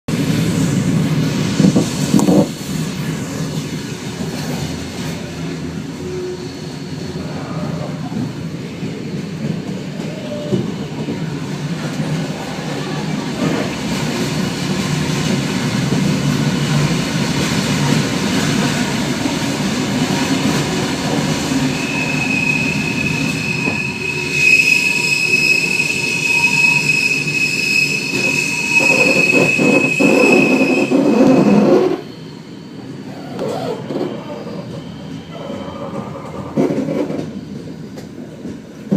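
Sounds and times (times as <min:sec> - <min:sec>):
train rumbling on rails: 0:00.1 - 0:38.9
high wheel squeal: 0:20.8 - 0:36.8
train knocks: 0:28.0 - 0:32.0.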